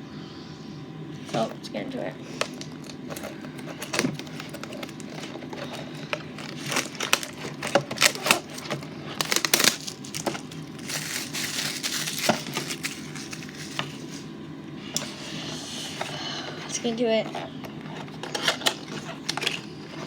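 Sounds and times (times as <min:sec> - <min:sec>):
plastic wrapper crinkling: 0:02.3 - 0:14.3, 0:16.8 - 0:20.0.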